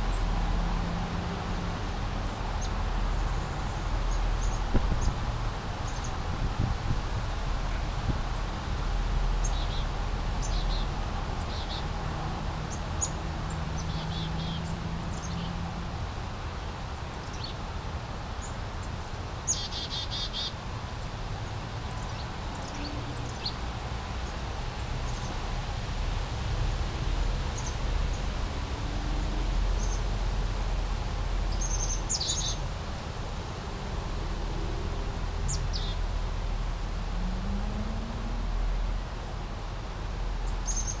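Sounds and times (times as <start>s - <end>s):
small birds chirping: 31.5s - 32.6s, 40.5s - 41.0s.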